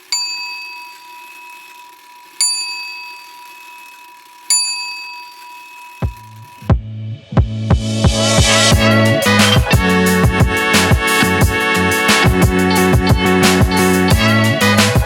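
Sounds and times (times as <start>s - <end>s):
bell-like chime ringing: 0.0s - 6.7s
music with deep bass thumps: 6.6s - 15.0s.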